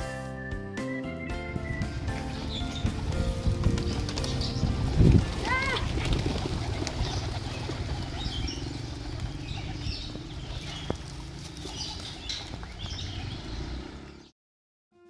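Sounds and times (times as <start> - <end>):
pigeon squab squeaking: 6.6 - 11.0.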